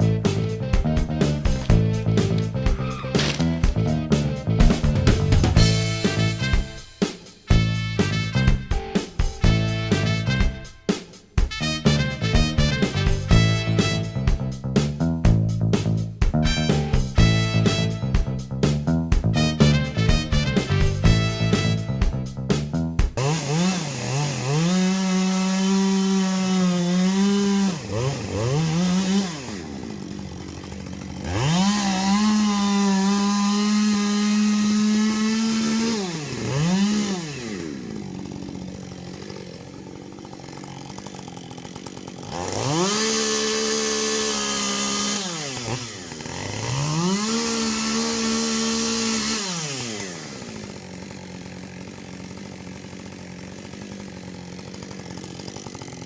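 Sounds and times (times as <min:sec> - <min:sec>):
chainsaw revving and idling: 0:00.0 - 0:56.0.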